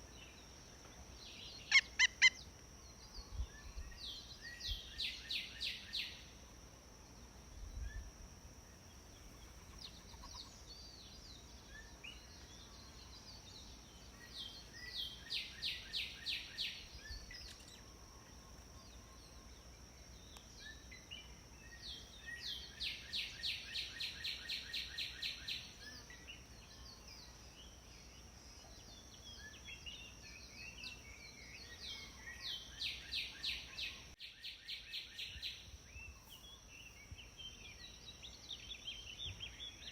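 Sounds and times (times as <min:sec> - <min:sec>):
woodpecker calling: 0:01.6 - 0:02.5, 0:09.5 - 0:10.6.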